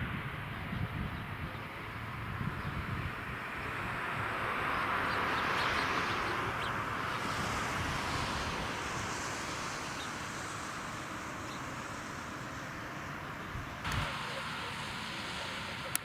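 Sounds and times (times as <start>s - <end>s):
jet engine rushing: 0.0s - 16.0s.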